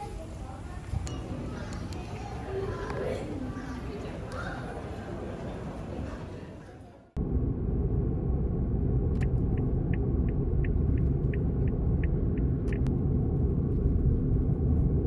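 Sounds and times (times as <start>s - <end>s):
car road and engine rumble: 7.2s - 15.0s.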